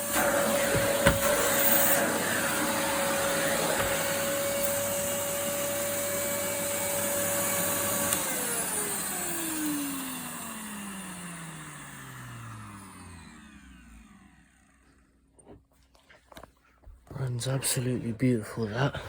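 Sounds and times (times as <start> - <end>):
vacuum cleaner motor whining: 0.0 - 15.3.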